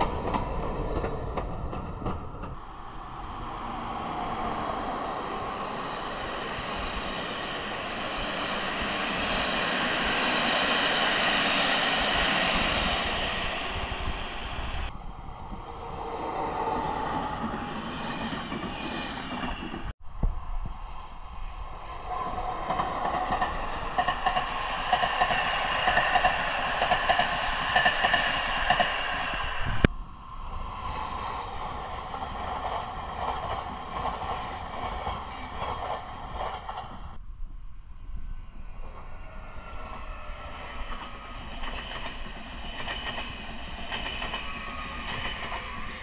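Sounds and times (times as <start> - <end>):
train rumbling on rails: 0.0 - 46.0
high whining tones: 38.1 - 46.0.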